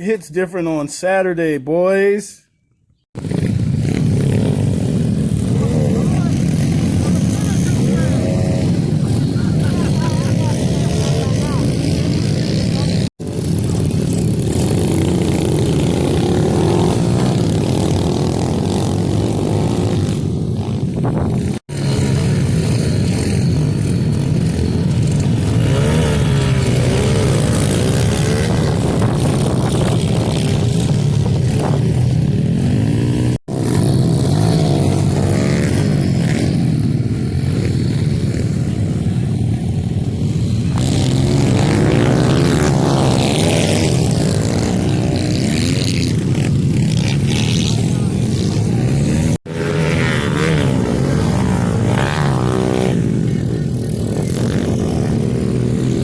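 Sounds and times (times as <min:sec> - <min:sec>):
dirt bike engines revving: 0:03.2 - 0:56.0.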